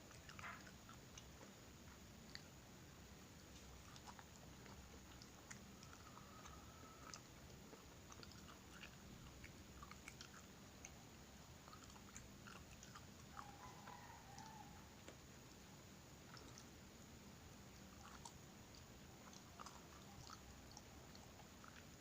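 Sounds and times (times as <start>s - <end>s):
animal chewing crunchy food: 0.0s - 2.6s, 3.4s - 15.7s
faint squeaky tone: 5.7s - 7.2s.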